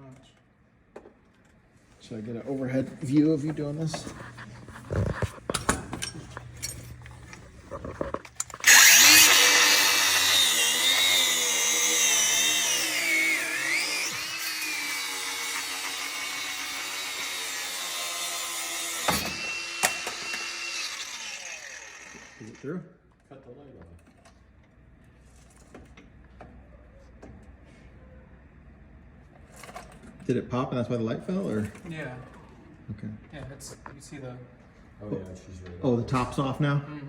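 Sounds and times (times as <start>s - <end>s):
power tool running under load: 8.4s - 22.7s.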